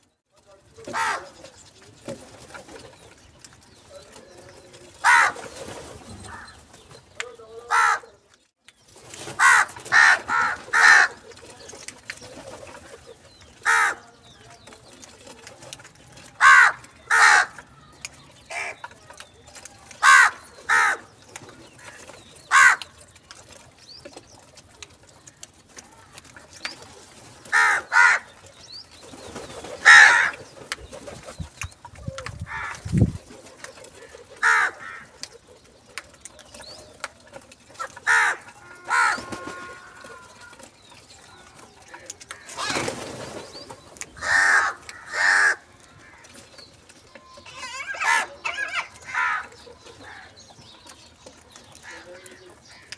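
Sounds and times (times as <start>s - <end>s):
crows cawing: 0.9s - 1.4s, 5.0s - 5.4s, 6.3s - 6.6s, 7.7s - 8.2s, 9.4s - 11.2s, 13.6s - 14.1s, 16.4s - 17.9s, 18.5s - 18.8s, 20.0s - 21.1s, 21.8s - 23.0s, 27.5s - 28.4s, 29.8s - 30.4s, 32.5s - 32.8s, 34.0s - 35.2s, 37.8s - 40.6s, 41.9s - 42.9s, 44.2s - 46.4s, 47.5s - 50.4s, 51.8s - 52.9s.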